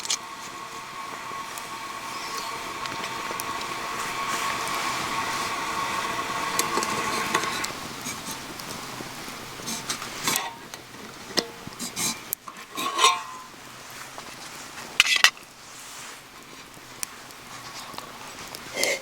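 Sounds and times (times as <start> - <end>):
metal utensil scraping pan: 0.0 - 13.6, 18.7 - 19.0
food sizzling in a pan: 0.0 - 19.0.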